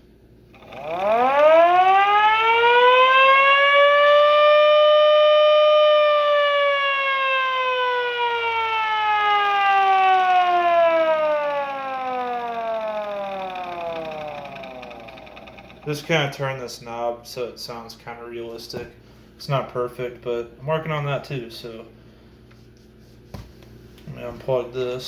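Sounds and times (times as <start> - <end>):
mechanical siren wailing: 0.5 - 16.0.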